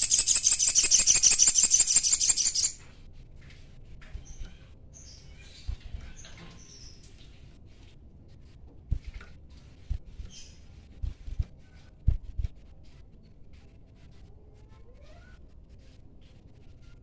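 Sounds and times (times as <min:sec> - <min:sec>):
soft gliding whistles: 0:00.0 - 0:02.8.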